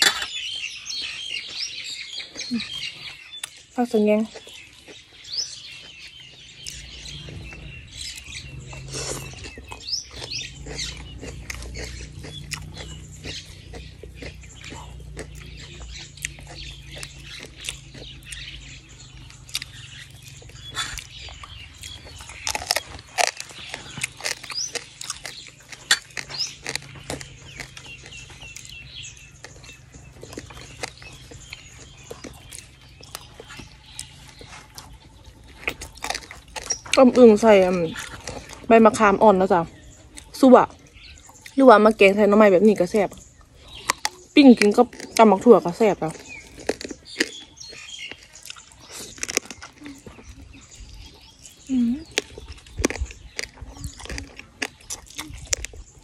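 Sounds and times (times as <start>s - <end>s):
small birds chirping: 0.0s - 56.0s
wet chewing and lip smacks: 0.0s - 56.0s.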